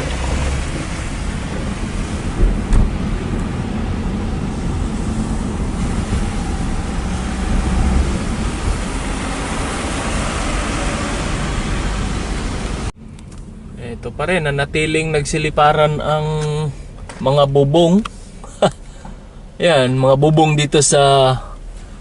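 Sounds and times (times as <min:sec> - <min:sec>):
wind buffeting microphone: 0:00.0 - 0:12.9
vehicle noise: 0:00.0 - 0:22.0.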